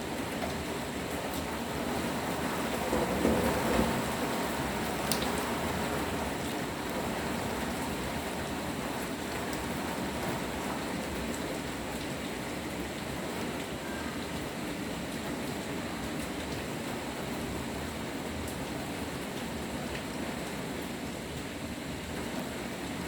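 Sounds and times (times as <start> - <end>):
steady rain falling: 0.0 - 23.0
raindrop ticks: 5.1 - 5.4.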